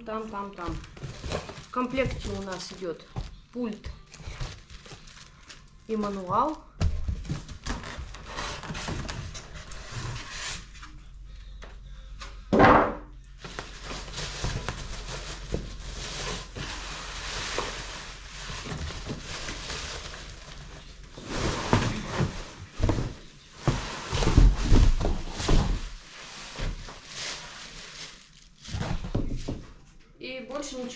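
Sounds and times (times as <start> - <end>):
packaging rustling: 0.4 - 6.6, 13.4 - 29.7.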